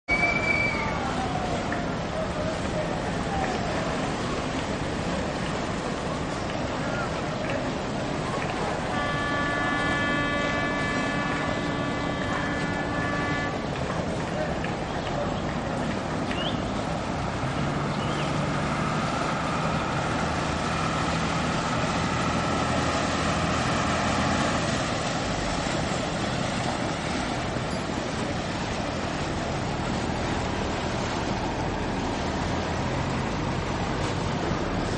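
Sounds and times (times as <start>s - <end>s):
boat engine droning: 0.1s - 34.9s
water rushing past hull: 0.1s - 34.9s.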